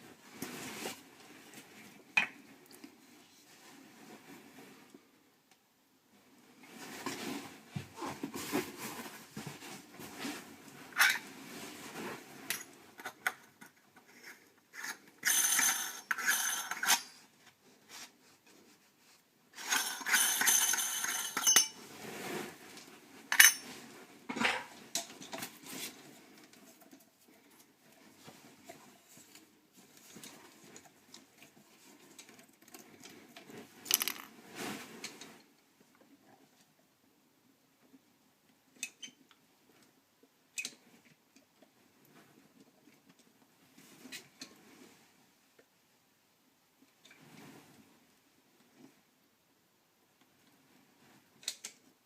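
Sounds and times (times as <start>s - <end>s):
metal objects clinking and scraping: 10.9s - 11.3s, 12.4s - 17.2s, 19.6s - 22.0s, 23.3s - 25.5s, 33.8s - 34.3s.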